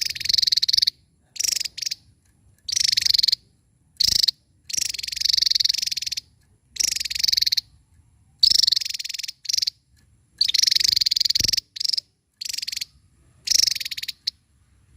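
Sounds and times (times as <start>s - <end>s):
bird buzzing trills: 2.7s - 3.4s, 4.0s - 7.7s, 8.4s - 9.8s, 10.4s - 14.4s.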